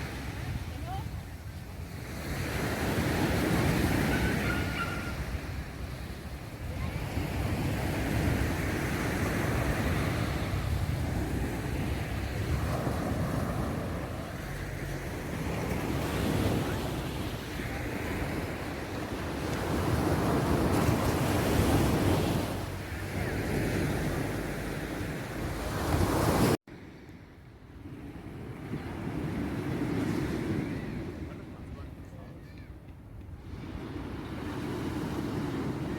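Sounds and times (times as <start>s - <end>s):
sea waves washing onto beach: 0.0s - 26.6s
wind rumbling on microphone: 0.0s - 35.9s.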